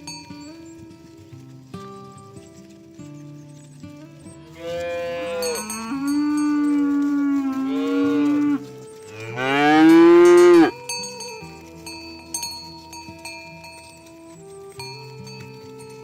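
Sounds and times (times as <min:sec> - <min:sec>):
cattle mooing: 0:04.5 - 0:10.7.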